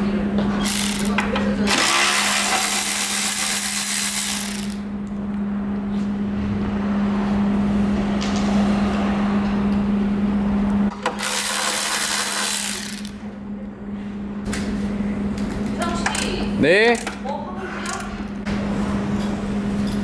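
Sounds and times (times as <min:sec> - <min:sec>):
steady low hum: 0:00.0 - 0:20.0
power tool hissing bursts: 0:01.7 - 0:04.8, 0:11.2 - 0:13.1.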